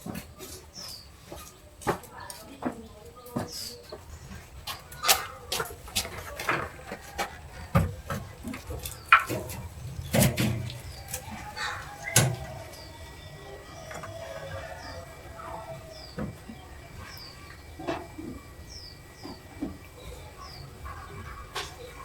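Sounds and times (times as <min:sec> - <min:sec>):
irregular knocks and clicks: 0:04.6 - 0:11.4.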